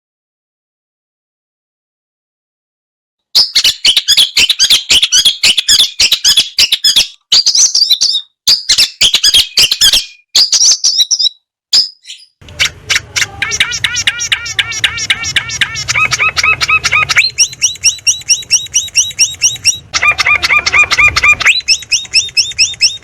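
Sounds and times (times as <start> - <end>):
bird harsh chattering song: 3.4 - 23.0
rapid ringing bird notes: 11.8 - 23.0
low background rumble: 12.4 - 23.0.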